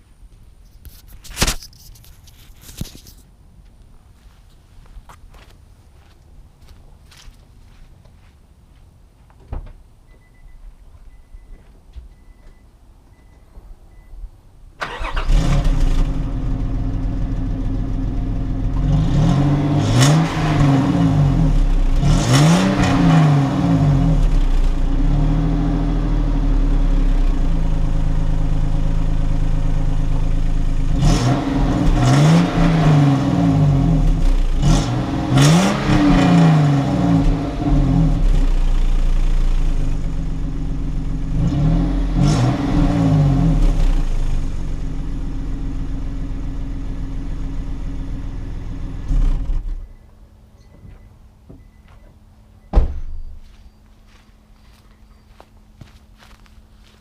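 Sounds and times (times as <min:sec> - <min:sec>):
car engine starting and idling: 0:11.1 - 0:57.0
engine revving: 0:14.8 - 0:17.5, 0:18.3 - 0:26.4, 0:30.8 - 0:38.9, 0:41.3 - 0:44.5.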